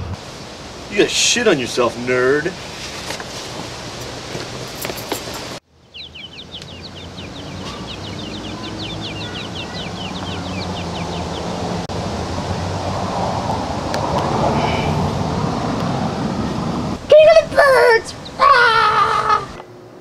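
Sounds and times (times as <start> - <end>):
steady background noise: 0.0 - 20.0
bird chirping quick notes: 5.8 - 11.8.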